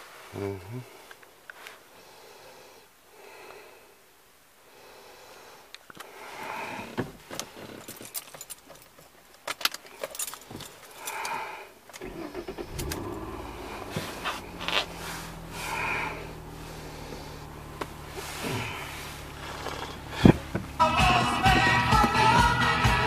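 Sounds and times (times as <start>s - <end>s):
keys jangling: 7.8s - 11.4s
car engine starting and idling: 9.4s - 23.0s.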